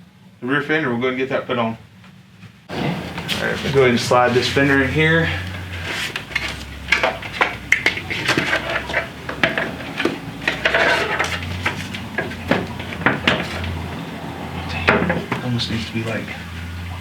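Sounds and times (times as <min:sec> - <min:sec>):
metal scraping: 0:02.7 - 0:15.2.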